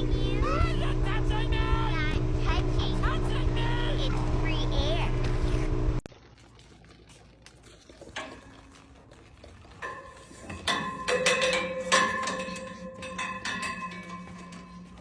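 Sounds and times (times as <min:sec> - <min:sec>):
metal objects clinking: 0:09.8 - 0:15.0.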